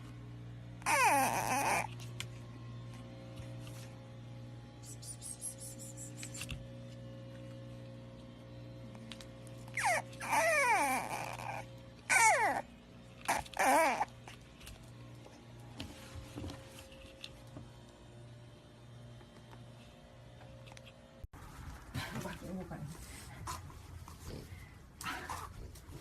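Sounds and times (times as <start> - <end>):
low steady hum: 0.0 - 26.0
dog whining: 0.8 - 2.0, 9.7 - 14.4.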